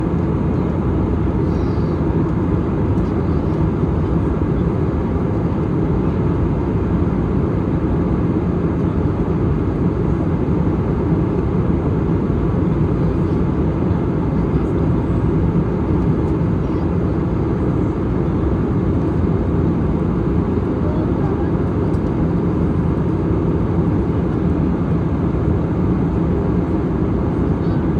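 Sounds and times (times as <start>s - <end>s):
airliner cabin engine noise: 0.0s - 27.9s.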